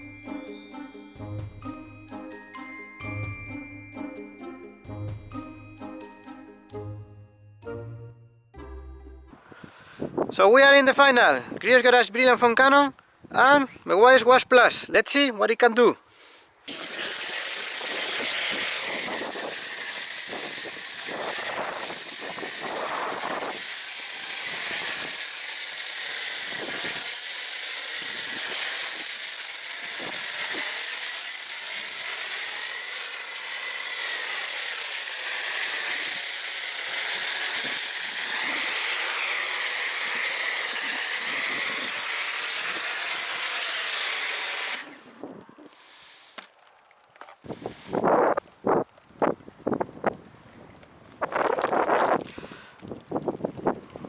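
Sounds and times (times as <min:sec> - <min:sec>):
pressure washer spraying: 0:16.7 - 0:45.1.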